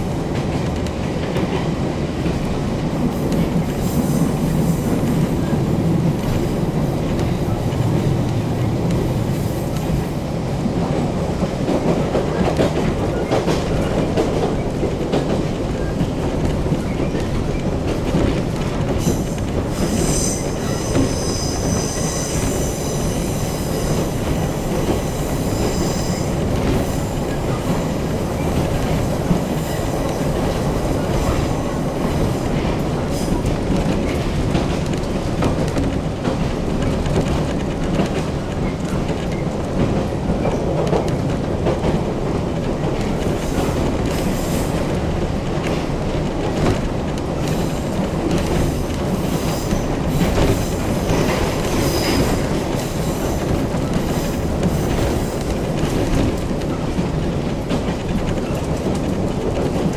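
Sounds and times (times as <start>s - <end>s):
wheels rumbling on rails: 0.0s - 59.9s
rail-joint clicks: 10.8s - 59.9s
high wheel squeal: 19.8s - 24.0s.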